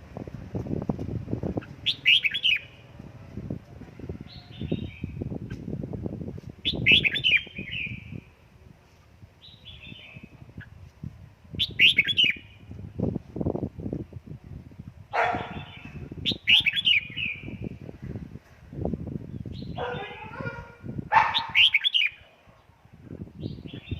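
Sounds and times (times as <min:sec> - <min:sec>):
bird singing: 0:01.6 - 0:02.9, 0:09.4 - 0:10.4, 0:15.2 - 0:17.7.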